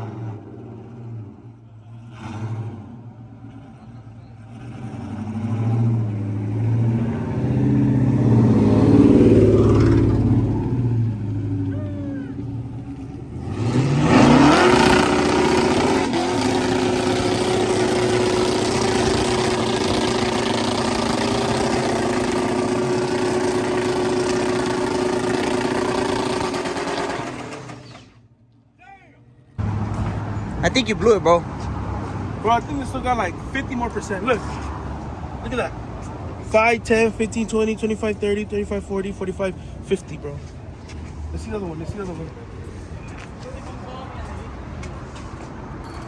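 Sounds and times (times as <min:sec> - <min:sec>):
car engine revving: 0:00.0 - 0:28.2.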